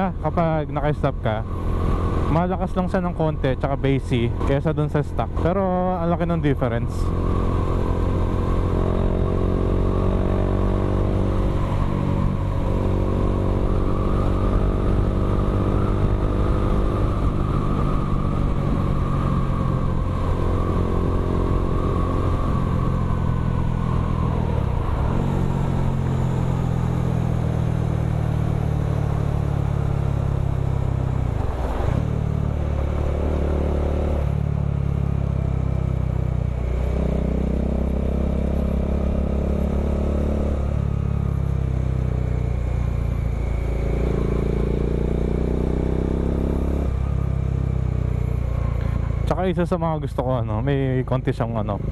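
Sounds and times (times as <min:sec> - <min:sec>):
motorcycle engine exhaust note: 0:30.3 - 0:51.9.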